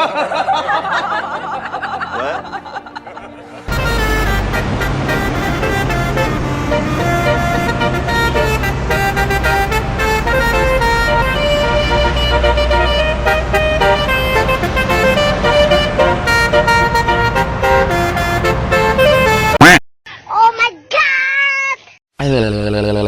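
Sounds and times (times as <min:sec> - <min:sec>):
multi-tone bus horn tune: 0:01.9 - 0:19.8
engine rumbling: 0:02.3 - 0:19.6.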